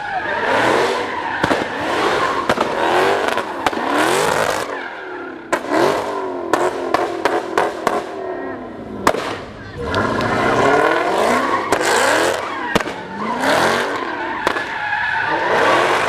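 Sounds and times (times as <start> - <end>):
car engine revving: 0.0 - 16.0
sharp cracks: 1.0 - 4.8, 9.0 - 15.0
tyre squeal: 10.0 - 16.0.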